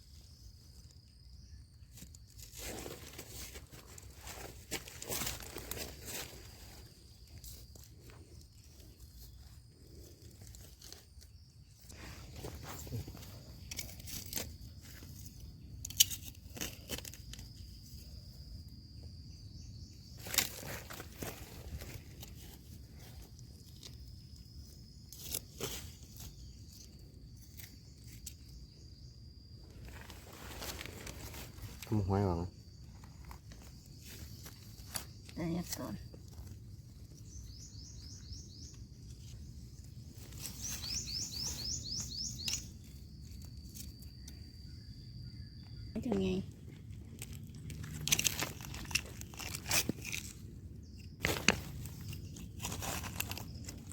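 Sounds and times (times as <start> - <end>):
twigs snapping: 20.2 - 22.3, 40.2 - 44.4, 47.1 - 50.5, 51.2 - 53.9
bird chirping: 36.9 - 46.4.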